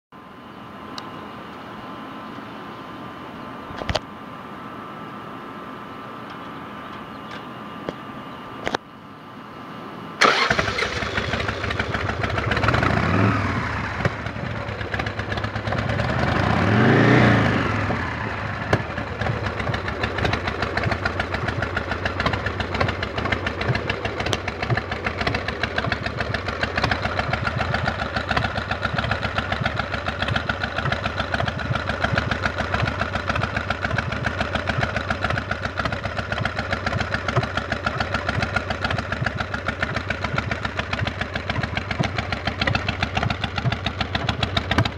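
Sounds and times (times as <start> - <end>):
motorcycle engine revving: 10.2 - 44.9.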